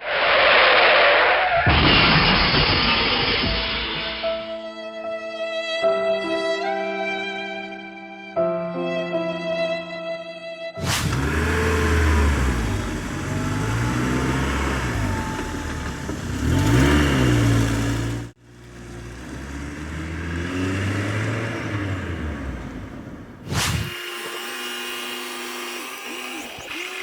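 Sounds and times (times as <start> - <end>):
truck engine revving: 10.8 - 27.0.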